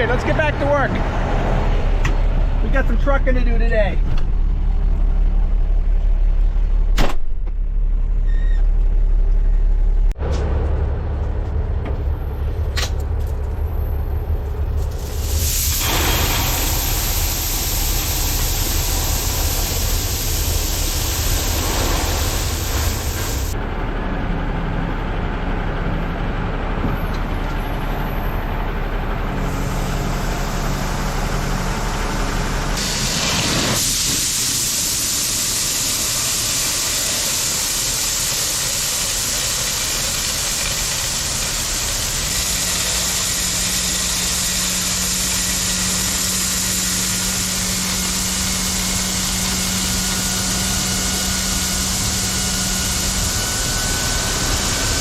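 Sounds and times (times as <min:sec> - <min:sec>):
heavy truck running: 0:00.0 - 0:55.0
steady hiss: 0:15.0 - 0:23.6.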